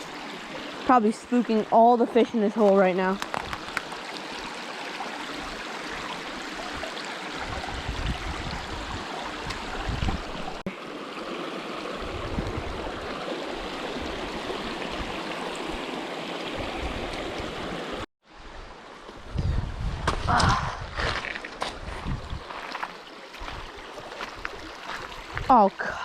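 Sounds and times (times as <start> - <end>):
stream running into pool: 0.0 - 26.0
wind buffeting microphone: 6.7 - 10.6, 11.9 - 15.8, 19.2 - 22.6.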